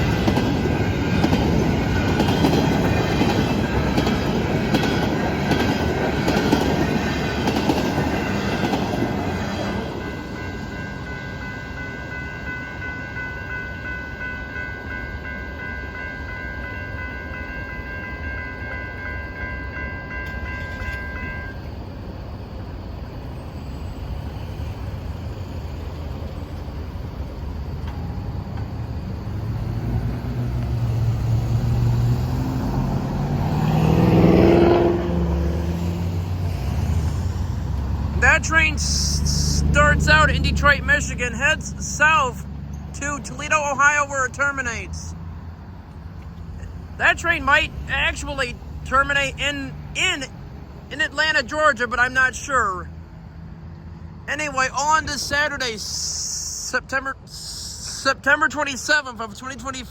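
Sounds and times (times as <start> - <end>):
freight train cars clickety-clack: 0.0 - 45.0
road vehicle rumble: 0.0 - 59.9.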